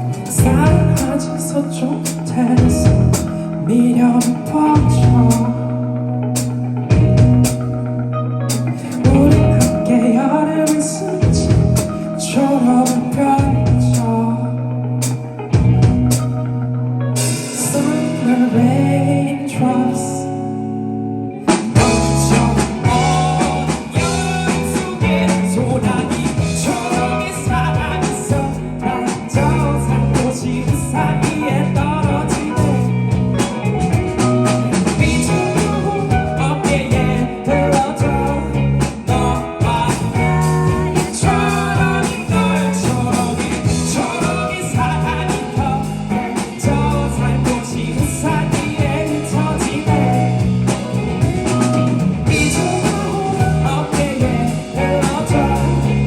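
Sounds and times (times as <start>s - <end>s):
drum kit beat: 0.0s - 1.3s, 2.0s - 3.4s, 4.2s - 5.5s, 6.4s - 7.9s, 8.5s - 10.0s, 10.7s - 12.0s, 15.0s - 16.5s, 21.5s - 56.0s
bass guitar: 0.0s - 56.0s
electric guitar: 0.0s - 56.0s.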